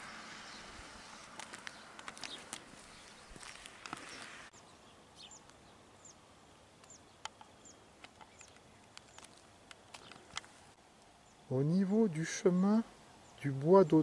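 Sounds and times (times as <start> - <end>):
small bird chirping: 0.0 - 6.2, 6.8 - 10.4.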